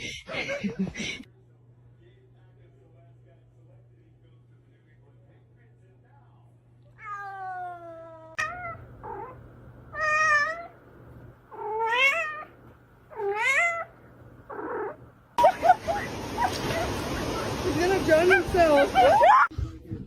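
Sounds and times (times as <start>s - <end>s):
faint low hum: 0.0s - 18.2s
cat meowing: 6.9s - 10.8s, 11.5s - 13.9s.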